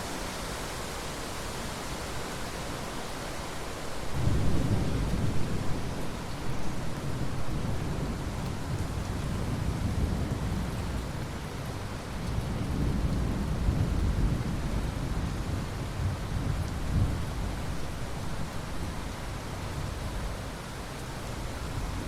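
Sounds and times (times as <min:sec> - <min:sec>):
steady rain: 0:00.0 - 0:22.0
rolling thunder: 0:04.2 - 0:17.6.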